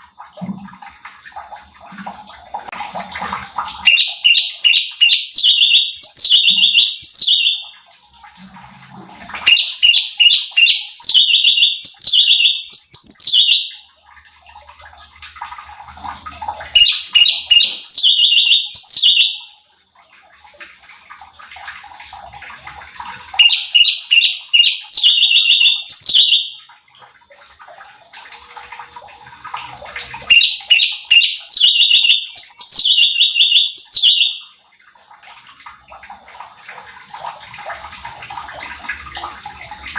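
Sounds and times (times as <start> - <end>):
songbird chattering and whistling: 3.8 - 7.7, 9.5 - 13.7, 16.8 - 19.5, 23.4 - 26.6, 30.3 - 34.4.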